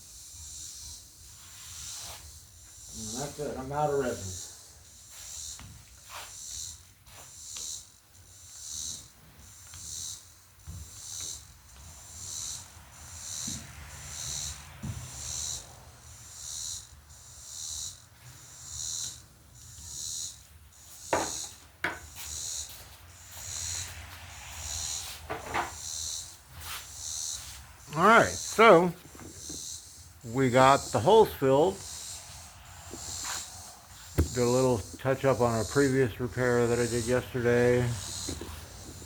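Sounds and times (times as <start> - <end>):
insects calling high-pitched pulsing: 0.0 - 39.0
sharp knocks: 34.1 - 34.9.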